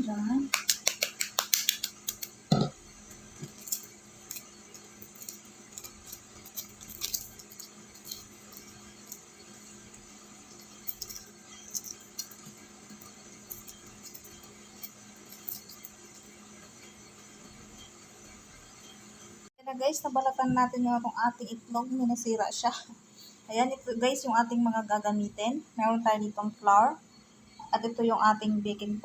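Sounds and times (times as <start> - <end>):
eggshell being peeled: 0.5 - 17.0.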